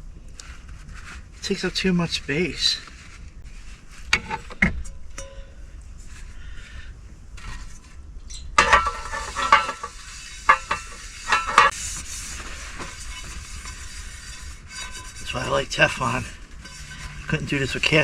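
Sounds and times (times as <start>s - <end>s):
pan and utensils clinking: 8.4s - 11.8s.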